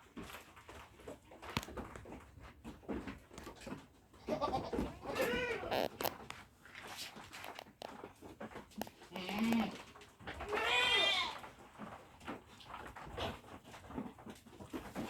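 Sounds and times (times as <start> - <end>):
goats bleating: 4.2 - 6.0, 9.0 - 9.8, 10.4 - 11.5.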